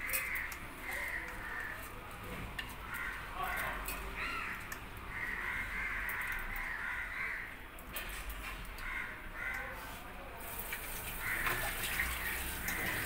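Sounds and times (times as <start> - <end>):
bird cawing: 0.0 - 1.8, 2.8 - 7.7, 8.8 - 9.8, 11.2 - 13.0.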